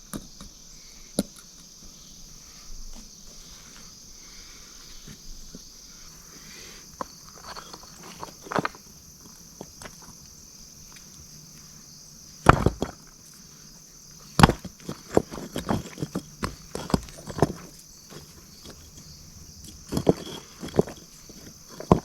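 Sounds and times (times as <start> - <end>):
high insect drone: 0.0 - 22.0
stones knocking on stone: 7.4 - 10.0, 12.4 - 13.2, 14.4 - 22.0.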